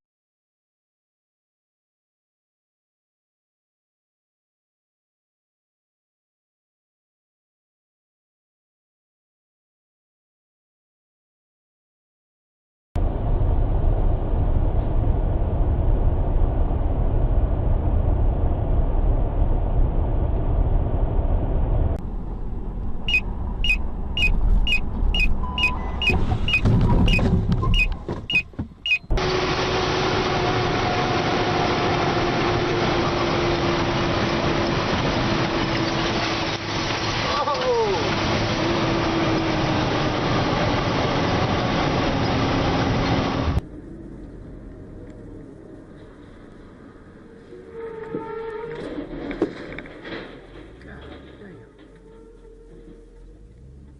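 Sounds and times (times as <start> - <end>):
low engine rumble: 13.0 - 53.9.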